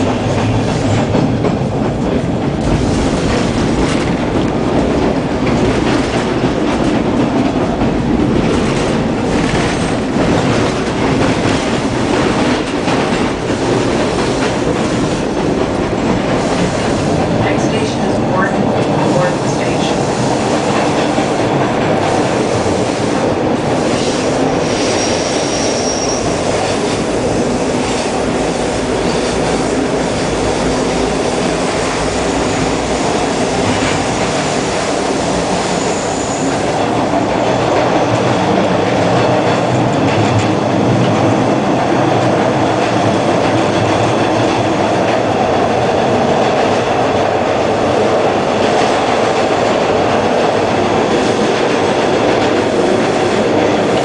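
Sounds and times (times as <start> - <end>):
subway car wheels rumbling on rail: 0.0 - 54.0
high wheel squeals: 24.8 - 26.4.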